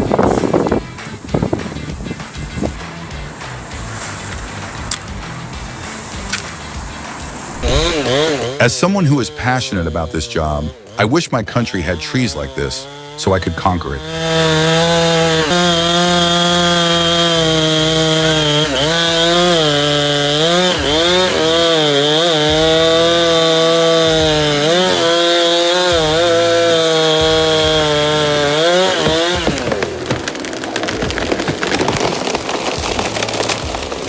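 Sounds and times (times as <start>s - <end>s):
chainsaw cutting wood: 0.0s - 34.0s
harsh crackling rustling noise: 28.7s - 34.0s.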